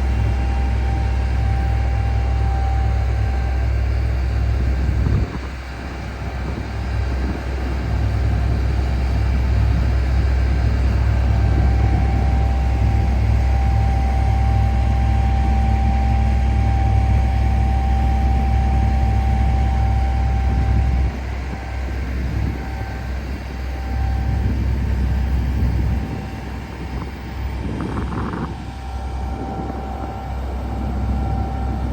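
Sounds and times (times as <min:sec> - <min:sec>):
diesel tractor engine drone: 0:00.0 - 0:31.9
high whine: 0:00.0 - 0:31.9.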